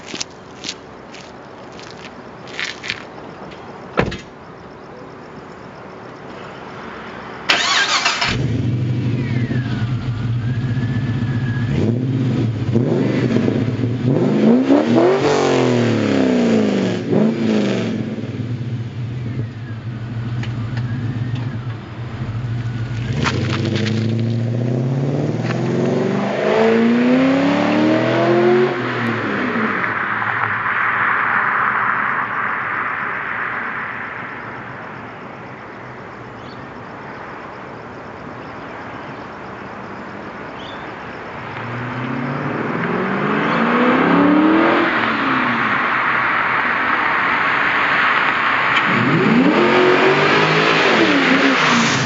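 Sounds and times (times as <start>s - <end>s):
car engine starting and idling: 7.4s - 15.0s, 17.0s - 26.4s
engine revving: 7.5s - 30.1s, 41.6s - 45.8s, 48.8s - 52.0s.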